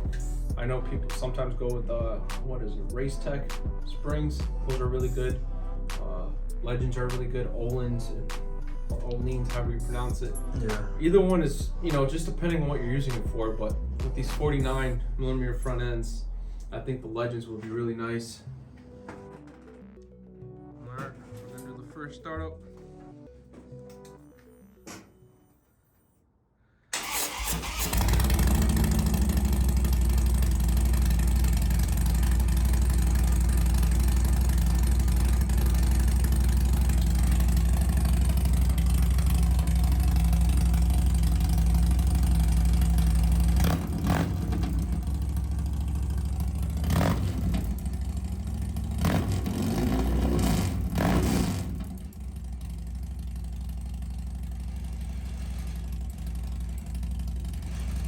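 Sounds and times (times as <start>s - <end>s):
motorcycle engine idling: 27.3s - 58.0s
motorcycle throttle blips: 27.4s - 54.8s.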